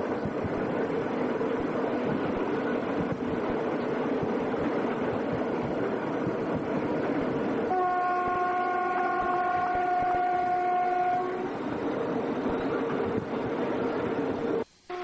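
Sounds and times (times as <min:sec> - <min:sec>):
train rumbling: 0:00.0 - 0:15.0
train horn blast: 0:07.7 - 0:11.7.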